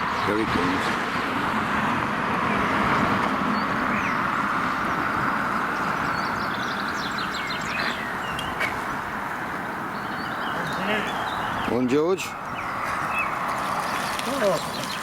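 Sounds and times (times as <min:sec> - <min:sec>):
small birds chirping: 0:03.3 - 0:15.0.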